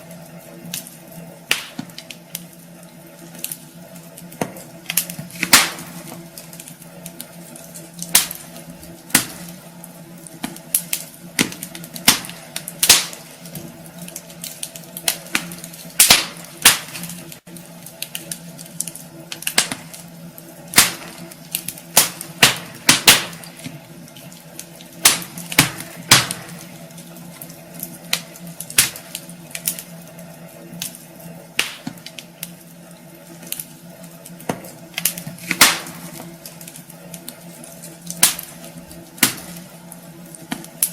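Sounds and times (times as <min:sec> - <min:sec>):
steady low hum: 0:00.0 - 0:40.9
wood fire crackling and popping: 0:00.0 - 0:40.9.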